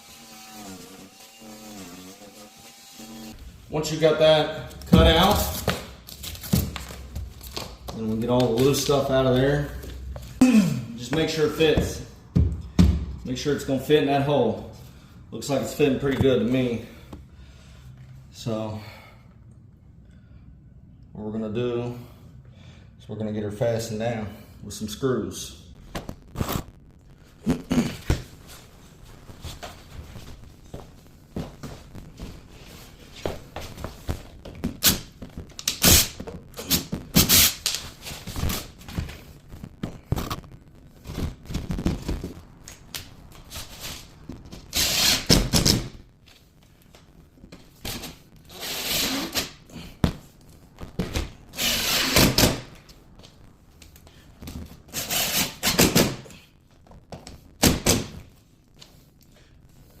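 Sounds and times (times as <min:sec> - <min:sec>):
power drill driving screws: 0:44.7 - 0:45.4.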